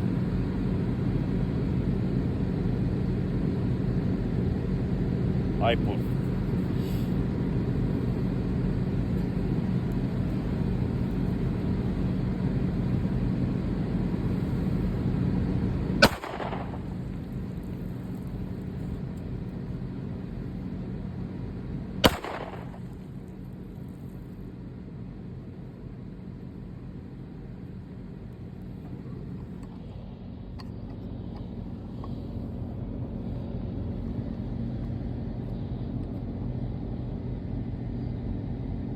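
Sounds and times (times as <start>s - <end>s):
steady low hum: 0.0s - 38.9s
pistol shots with echo: 16.0s - 17.5s, 22.0s - 23.2s.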